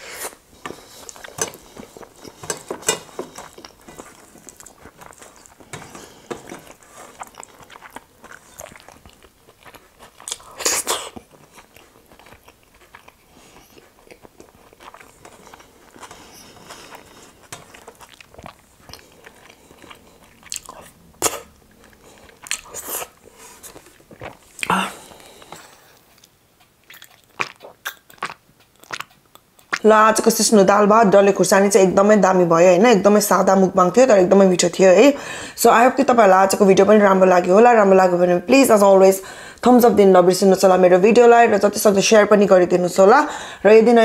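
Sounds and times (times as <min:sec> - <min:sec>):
chewing with wet mouth smacks: 0:00.6 - 0:29.9
fingers being licked: 0:26.1 - 0:29.8.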